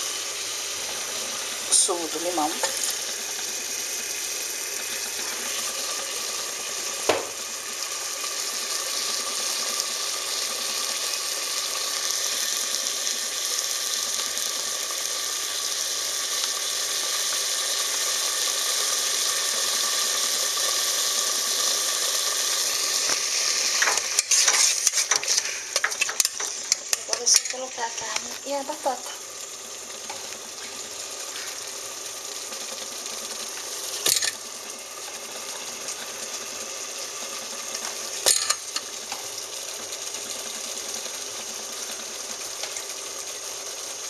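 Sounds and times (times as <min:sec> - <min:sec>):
sauce sizzling in a pot: 0:00.0 - 0:44.0
sharp knock: 0:07.1 - 0:07.3
spoon scraping and clattering pot: 0:23.8 - 0:27.7, 0:34.0 - 0:34.4, 0:38.3 - 0:38.9.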